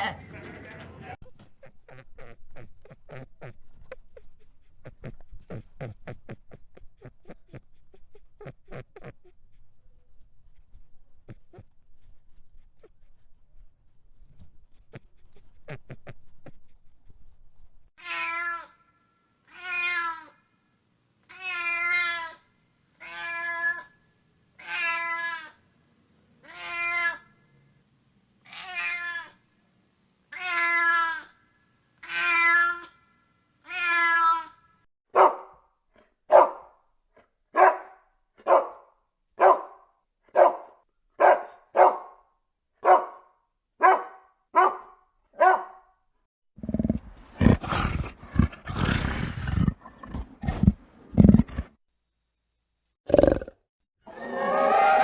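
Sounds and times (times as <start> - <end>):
cat meowing: 1.2 - 13.4, 18.0 - 18.8, 19.5 - 20.4, 21.3 - 22.4, 26.4 - 27.2, 32.0 - 32.9, 33.7 - 34.5
loud roar: 54.1 - 55.0.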